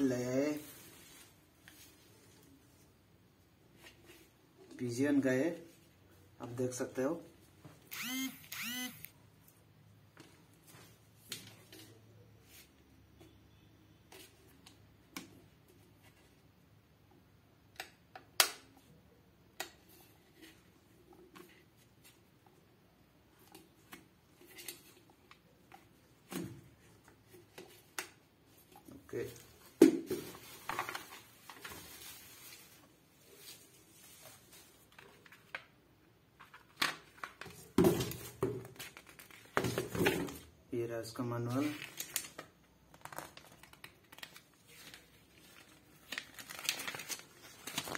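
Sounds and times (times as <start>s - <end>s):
packaging rustling and crinkling: 29.1s - 35.6s, 41.5s - 47.9s.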